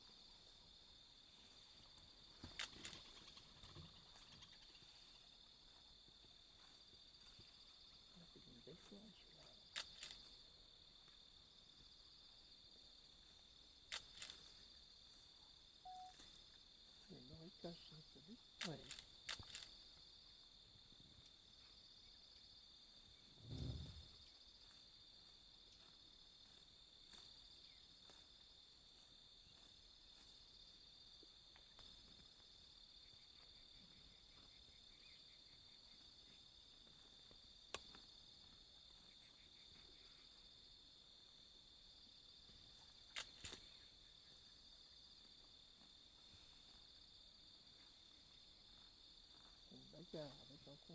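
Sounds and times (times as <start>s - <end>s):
sharp clicks: 18.6s - 19.7s.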